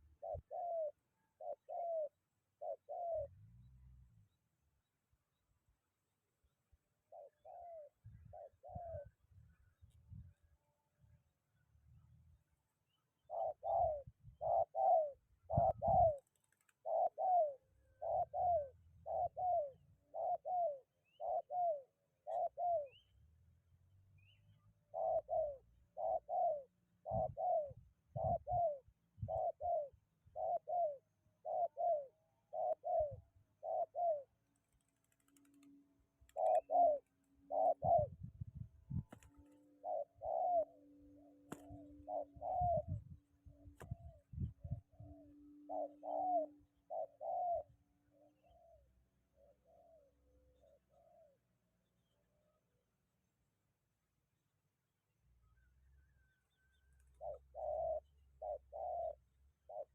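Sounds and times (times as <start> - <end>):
dove cooing: 0.0 - 3.9, 7.0 - 9.3, 13.1 - 23.0, 24.8 - 51.5, 55.5 - 59.9.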